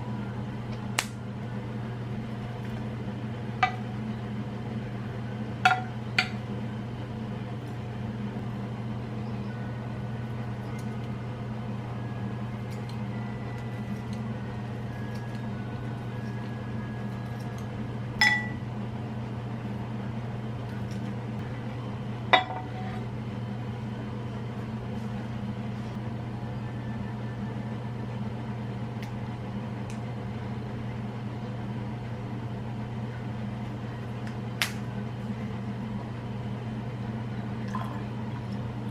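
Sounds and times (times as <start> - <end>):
low appliance hum: 0.0 - 38.9
glassware clinking: 18.2 - 18.6.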